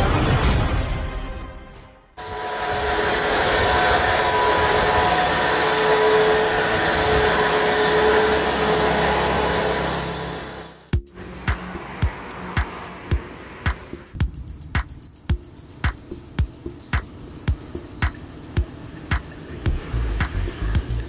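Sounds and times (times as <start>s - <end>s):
electric power tool whining: 2.2s - 10.9s.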